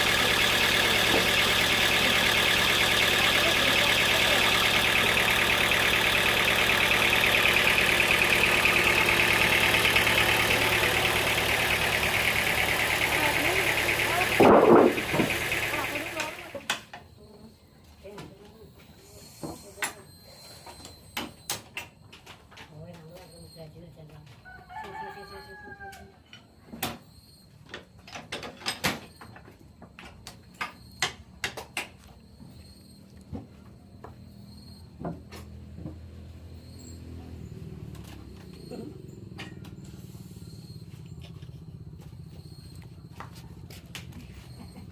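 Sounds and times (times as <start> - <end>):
sawmill machinery drone: 0.0 - 16.7.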